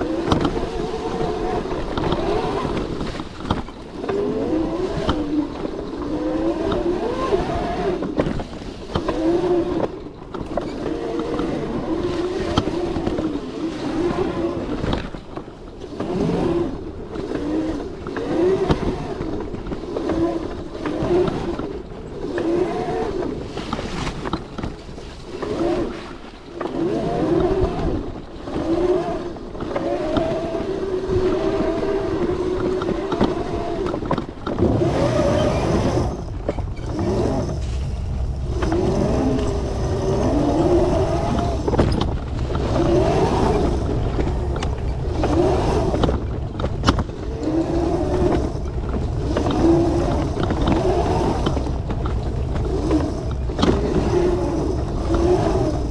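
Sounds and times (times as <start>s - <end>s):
wind and terrain noise: 0.0s - 55.9s
electric motor whine: 26.8s - 55.9s.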